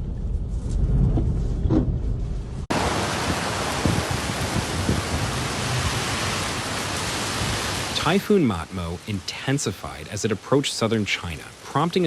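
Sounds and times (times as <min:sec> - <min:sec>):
wind buffeting microphone: 0:00.0 - 0:07.9
heavy wind-driven rain hiss: 0:02.7 - 0:12.0.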